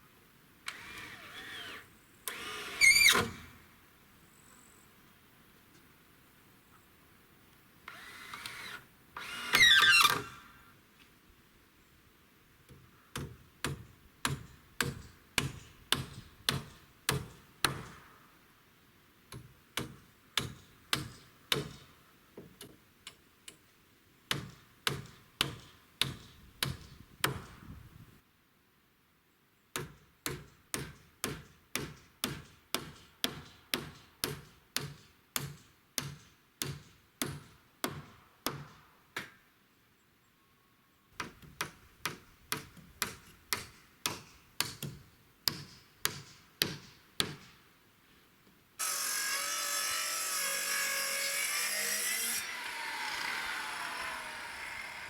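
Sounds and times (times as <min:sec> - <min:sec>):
hammer driving nails into wood: 0:41.2 - 0:47.6.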